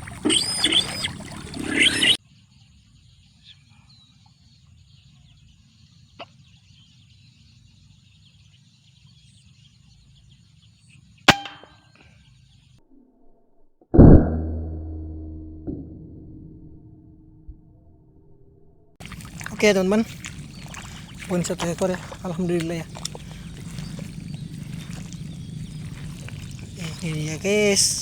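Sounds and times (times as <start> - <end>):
faint insects: 0.0 - 11.0, 19.0 - 28.0
ringing thud: 11.3 - 11.8.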